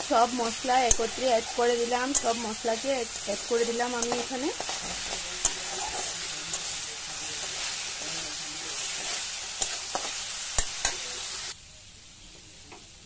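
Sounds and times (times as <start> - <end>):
metal spatula scraping pan: 0.0 - 11.1
spice paste sizzling in oil: 0.0 - 13.0.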